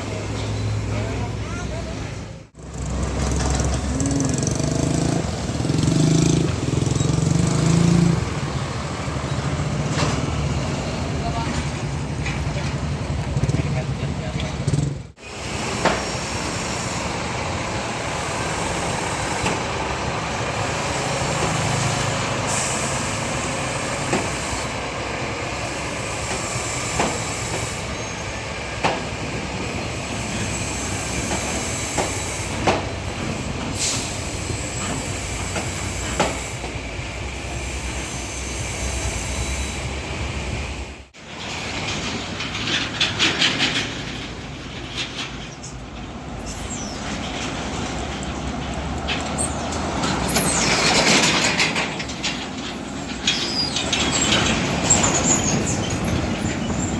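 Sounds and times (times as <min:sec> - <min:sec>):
heavy trucks passing: 0:00.0 - 0:56.9.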